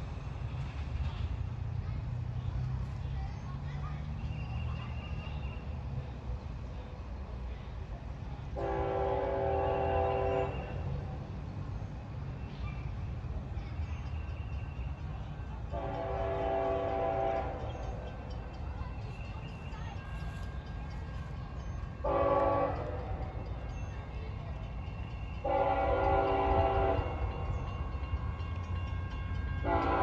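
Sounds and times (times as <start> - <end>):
passing train rumble: 0.0 - 30.0
locomotive air horn blasts: 8.6 - 10.8, 15.7 - 17.6, 22.0 - 23.2, 25.4 - 27.2, 29.6 - 30.0.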